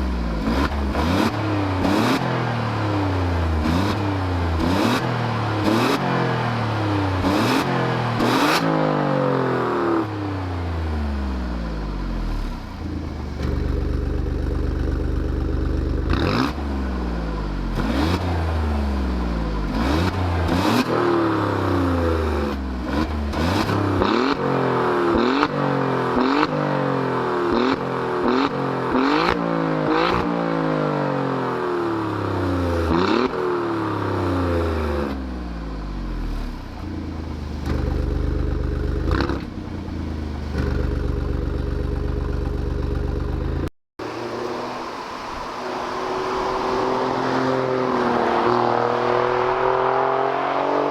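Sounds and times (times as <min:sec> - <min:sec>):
car engine revving: 0:00.0 - 0:50.9
exhaust crack: 0:12.8 - 0:16.7, 0:36.8 - 0:44.6.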